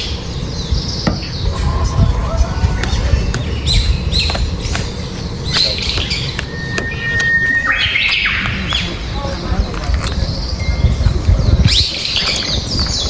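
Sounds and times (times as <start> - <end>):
whistled bird note: 0.0 - 9.4
birds squawking and chirping: 0.0 - 13.0
low rumble: 0.6 - 5.5.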